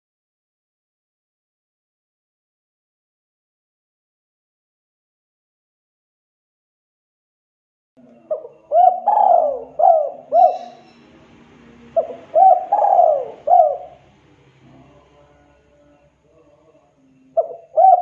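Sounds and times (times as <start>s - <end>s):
dove cooing: 8.0s - 15.0s, 17.3s - 18.0s.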